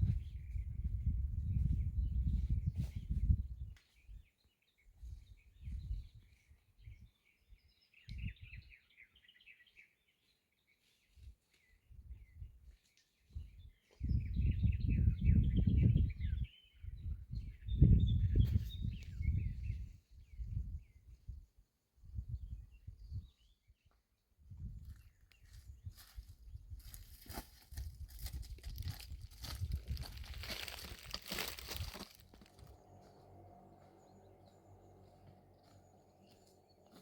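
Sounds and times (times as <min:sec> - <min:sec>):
wind buffeting microphone: 0:00.0 - 0:04.3, 0:05.0 - 0:07.1, 0:08.1 - 0:08.7, 0:13.3 - 0:23.5, 0:24.5 - 0:32.8.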